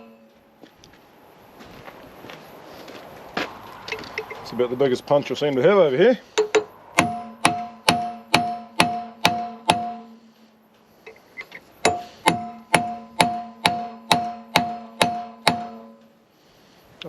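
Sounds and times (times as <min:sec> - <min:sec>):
hammer striking steel punch: 0:06.4 - 0:10.2, 0:11.8 - 0:16.1.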